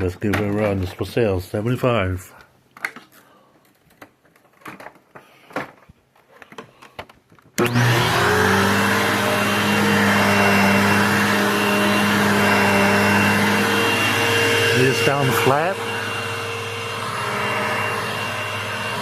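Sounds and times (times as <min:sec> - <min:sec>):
vacuum cleaner motor whining: 0:07.6 - 0:19.0.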